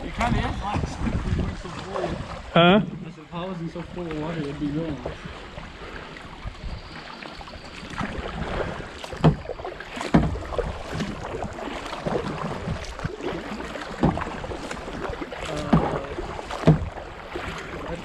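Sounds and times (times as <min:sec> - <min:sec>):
water splashing and lapping: 0:00.0 - 0:18.0
sharp knocks: 0:16.6 - 0:16.9.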